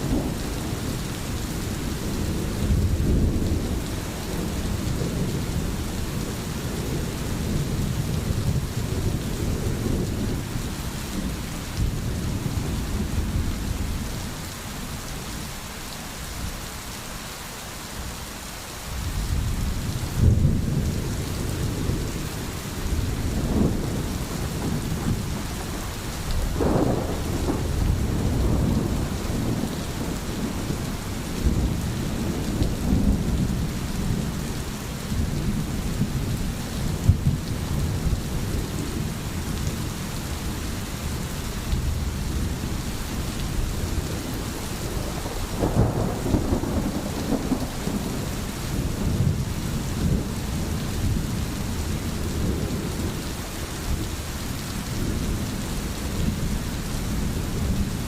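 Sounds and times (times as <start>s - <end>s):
steady rain falling: 0.0s - 58.0s
rolling thunder: 19.1s - 39.9s, 43.8s - 53.2s.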